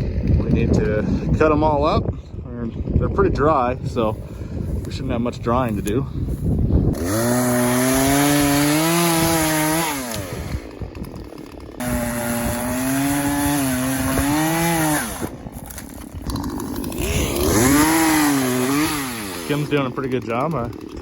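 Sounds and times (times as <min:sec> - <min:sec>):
chainsaw cutting wood: 0:00.0 - 0:01.1, 0:06.9 - 0:21.0.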